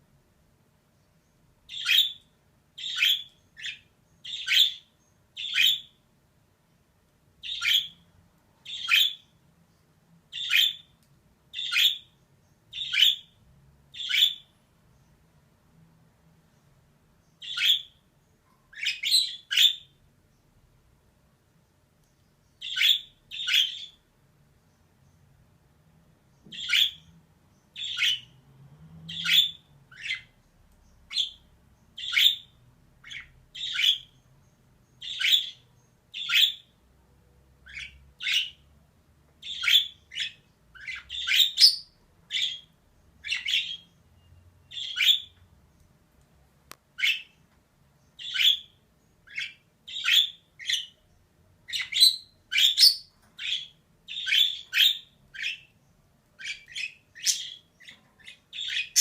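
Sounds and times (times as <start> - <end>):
budgerigar chirping calls: 1.7 - 6.0, 7.4 - 8.0, 8.6 - 9.3, 10.3 - 10.9, 11.5 - 14.5, 17.4 - 18.0, 18.7 - 20.0, 22.6 - 24.0, 26.5 - 27.1, 27.7 - 28.3, 29.1 - 30.4, 31.1 - 31.4, 32.0 - 34.2, 35.0 - 36.8, 37.6 - 38.7, 39.4 - 44.0, 44.6 - 45.4, 47.0 - 47.4, 48.2 - 51.0, 51.6 - 55.7, 56.4 - 59.0.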